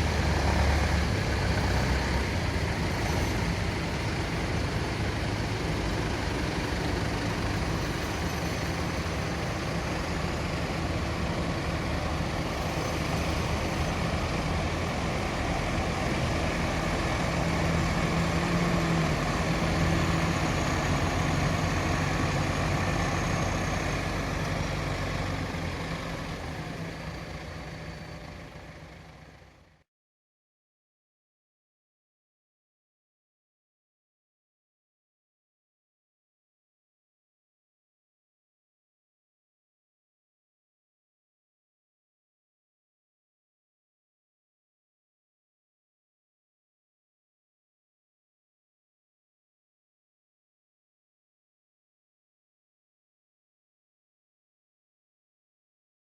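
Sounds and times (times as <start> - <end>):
vehicle engine running: 0.0 - 29.8.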